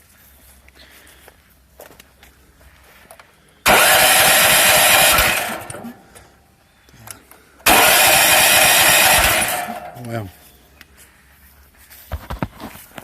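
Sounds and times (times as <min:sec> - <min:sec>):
engine starter cranking: 0:03.6 - 0:06.3, 0:07.6 - 0:10.3.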